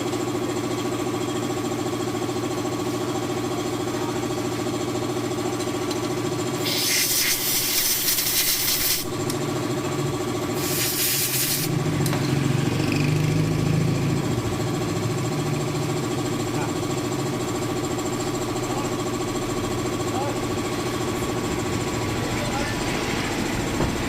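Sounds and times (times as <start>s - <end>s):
engine idling: 0.0s - 24.0s
loud air hisses: 6.6s - 9.1s, 10.6s - 11.8s.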